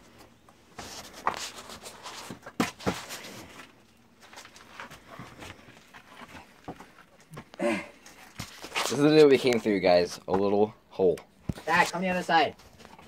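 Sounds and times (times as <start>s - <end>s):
people scuffing and shuffling: 0.1s - 10.6s, 11.5s - 13.0s.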